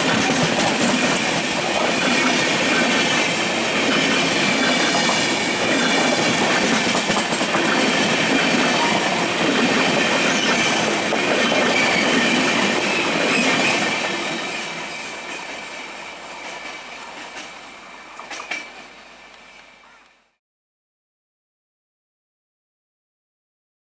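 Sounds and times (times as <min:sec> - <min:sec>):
train wheels rumbling on rails: 0:00.0 - 0:20.0
high wheel squeal: 0:11.7 - 0:18.9.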